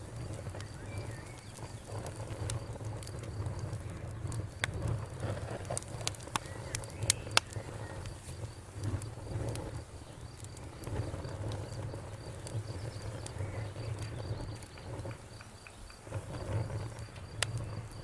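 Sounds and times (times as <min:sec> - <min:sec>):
cricket chirping: 0:00.0 - 0:18.0
wood fire crackling: 0:00.0 - 0:18.0.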